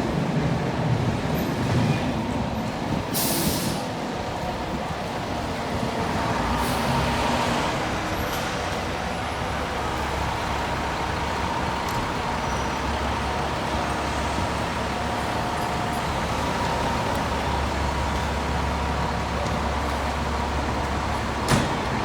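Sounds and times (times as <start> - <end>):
city street traffic: 0.0 - 22.0.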